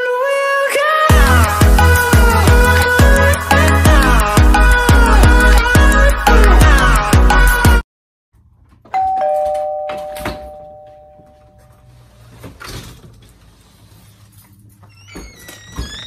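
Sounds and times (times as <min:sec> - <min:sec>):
two-note door chime: 0:09.0 - 0:11.7.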